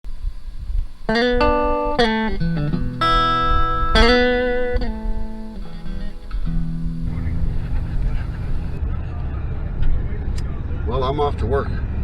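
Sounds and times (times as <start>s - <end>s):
plucked guitar chords: 1.1s - 8.8s
low rumble: 4.8s - 9.0s.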